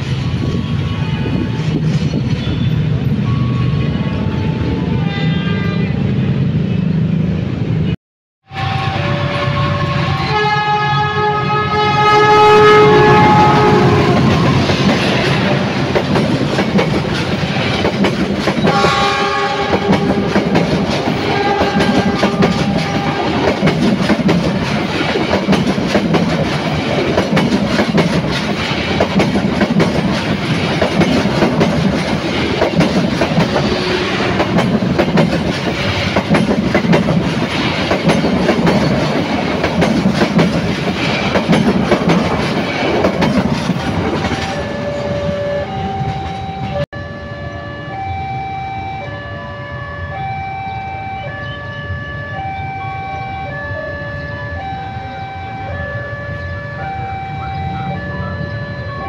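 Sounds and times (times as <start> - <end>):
locomotive horn blasts: 5.0 - 6.4, 8.4 - 14.7, 18.7 - 20.6, 21.2 - 23.5
train wheels clattering on rails: 13.5 - 46.8.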